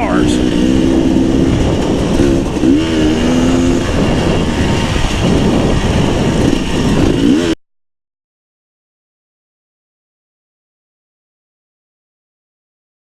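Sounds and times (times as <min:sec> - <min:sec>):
dirt bike engine revving: 0:00.0 - 0:07.6.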